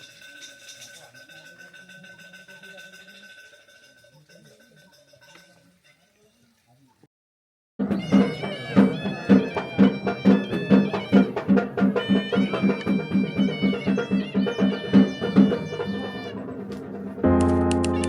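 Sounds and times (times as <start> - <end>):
sharp beat: 7.8 - 18.0
melody of held notes: 17.2 - 18.0.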